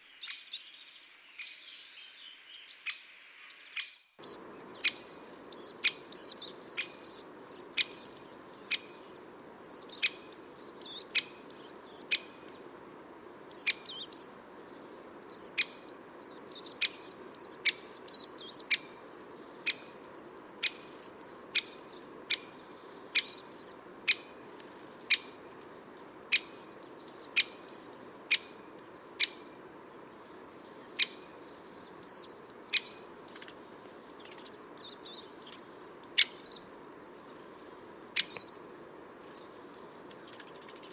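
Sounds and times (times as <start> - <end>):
songbirds chirping and twittering: 0.0 - 40.9
sharp bird ticks: 40.1 - 40.8.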